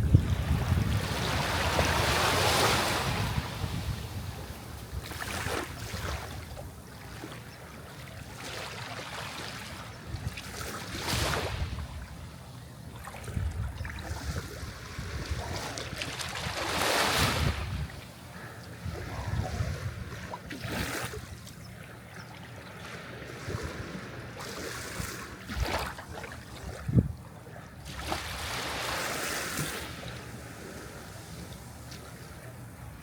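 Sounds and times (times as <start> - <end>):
wind rumble on microphone: 0.0 - 6.9, 9.9 - 12.4, 13.0 - 21.4, 23.2 - 28.5
sea waves washing in: 0.0 - 7.4, 27.9 - 33.0.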